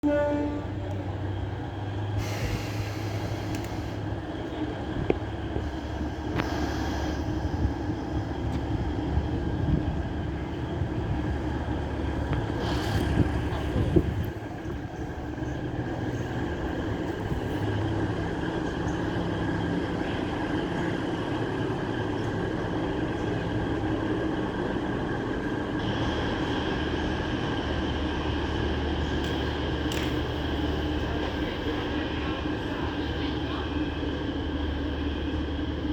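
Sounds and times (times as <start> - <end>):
train rumbling along track: 0.0 - 35.9.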